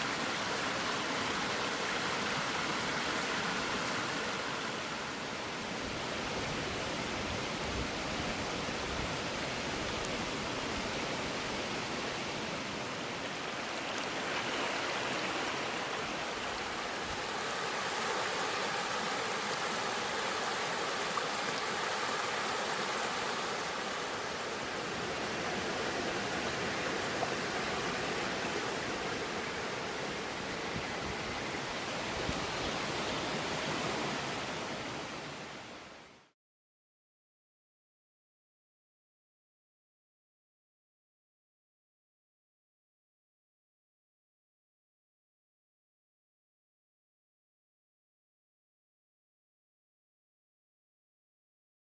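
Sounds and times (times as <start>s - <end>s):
river water rushing: 0.0s - 36.2s.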